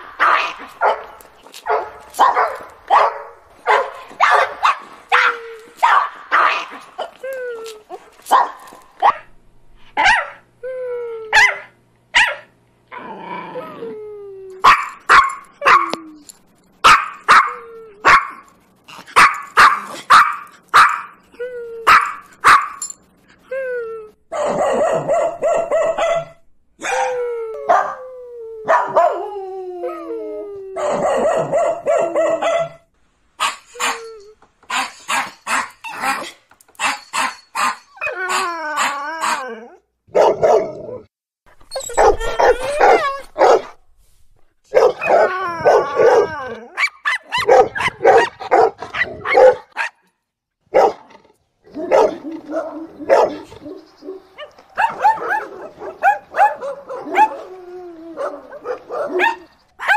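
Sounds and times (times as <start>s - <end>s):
dogs barking: 0.0s - 7.1s, 8.3s - 9.3s, 11.4s - 12.5s, 14.6s - 16.0s, 16.8s - 18.4s, 19.1s - 21.2s, 21.9s - 22.8s, 24.3s - 27.0s, 30.8s - 32.8s, 40.1s - 40.9s, 41.9s - 43.8s, 44.7s - 50.0s, 50.7s - 51.1s, 51.7s - 57.5s, 58.2s - 59.9s
dogs howling: 24.4s - 32.6s, 38.0s - 41.1s, 41.8s - 43.6s, 44.8s - 49.7s, 51.7s - 59.9s.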